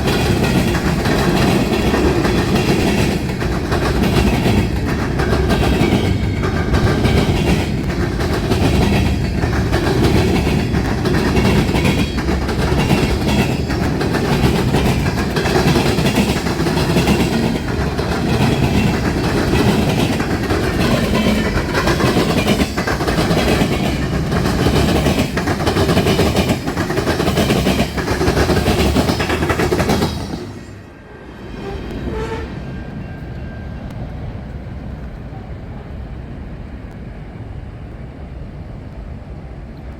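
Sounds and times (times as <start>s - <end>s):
train wheels clacking on rails: 0.0s - 30.9s.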